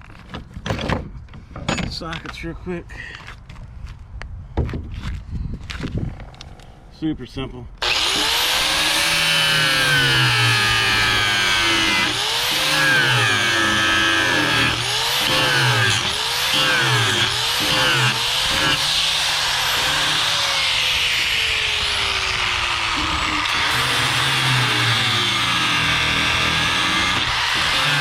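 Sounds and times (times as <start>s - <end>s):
angle grinder cutting metal: 7.8s - 28.0s.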